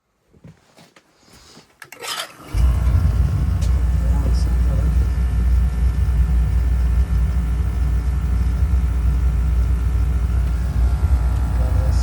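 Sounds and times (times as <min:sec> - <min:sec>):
oil burner rumbling: 0:02.4 - 0:12.0.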